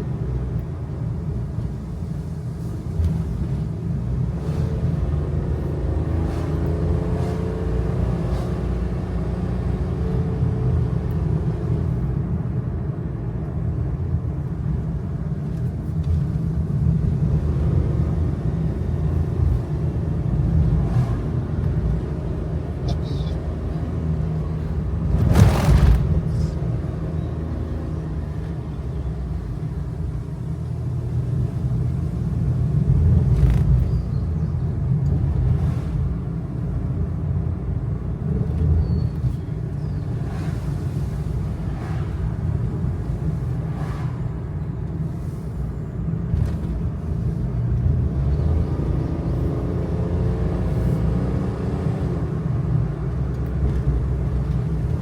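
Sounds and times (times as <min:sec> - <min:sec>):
truck engine and road rumble: 0:00.0 - 0:55.0
knocks and rattles over bumps: 0:24.8 - 0:26.6.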